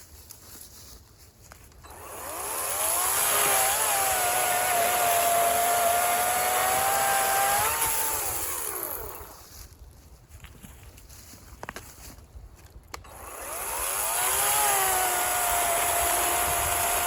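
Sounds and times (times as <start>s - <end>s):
electric chainsaw motor whining: 1.8s - 9.4s, 13.0s - 17.0s.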